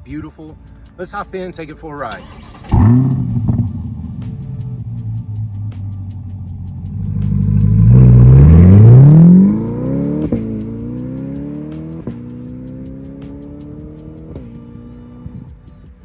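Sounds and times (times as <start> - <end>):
car engine accelerating hard: 2.2 - 5.7, 6.5 - 15.4.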